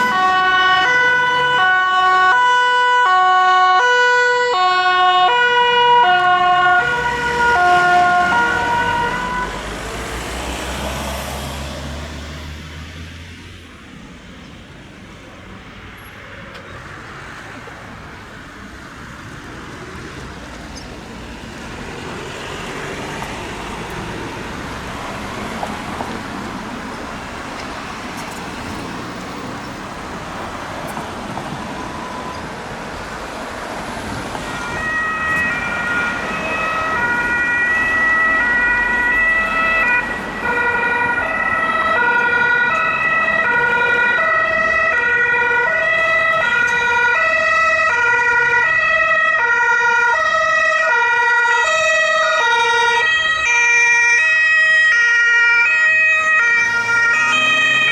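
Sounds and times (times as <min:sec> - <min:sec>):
two-tone emergency siren: 0:00.0 - 0:12.2, 0:27.9 - 0:57.9
vehicle and road noise: 0:00.0 - 0:57.9.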